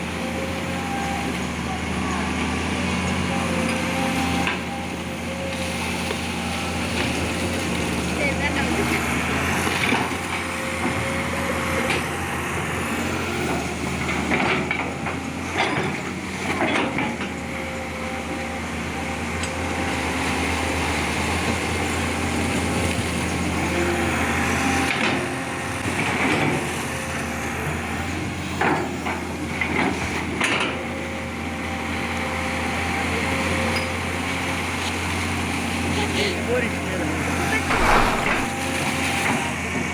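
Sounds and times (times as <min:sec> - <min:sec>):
excavator diesel engine running: 0:00.0 - 0:38.9
sharp knocks: 0:37.7 - 0:38.6.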